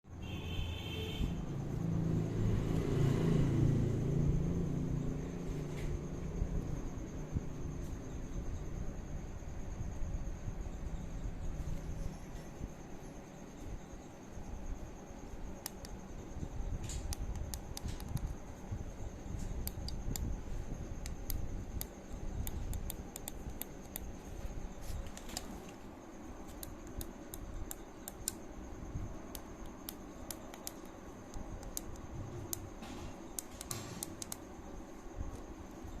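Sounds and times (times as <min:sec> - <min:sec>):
steady low hum: 0:00.0 - 0:36.0
small clicks and taps: 0:16.8 - 0:18.4, 0:29.3 - 0:34.4.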